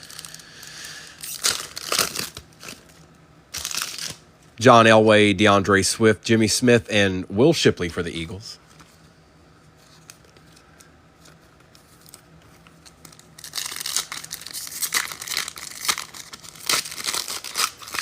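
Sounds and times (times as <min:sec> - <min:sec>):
card wrapper tearing and crinkling: 0:00.0 - 0:00.5, 0:01.1 - 0:04.2, 0:11.2 - 0:18.0.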